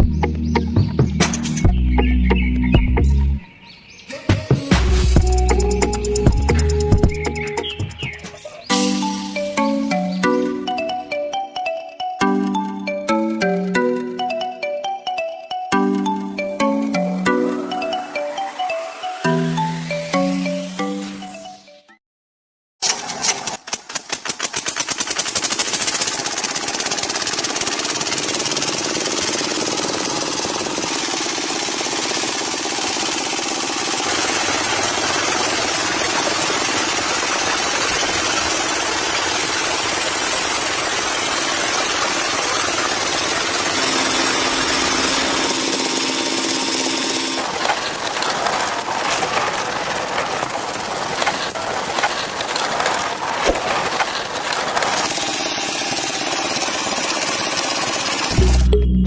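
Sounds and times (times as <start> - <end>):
miniature engine rattling: 22.8 - 58.6.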